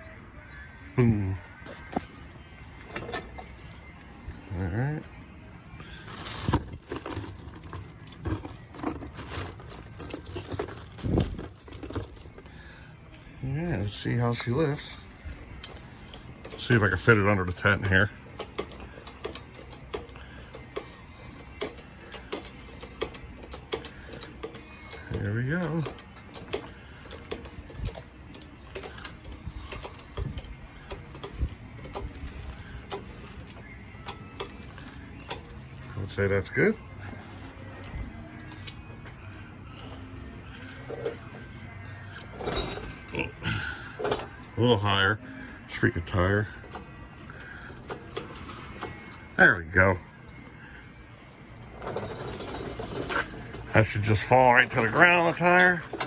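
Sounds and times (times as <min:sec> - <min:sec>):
metal jingling and rattling: 0:06.1 - 0:12.5, 0:51.8 - 0:56.0.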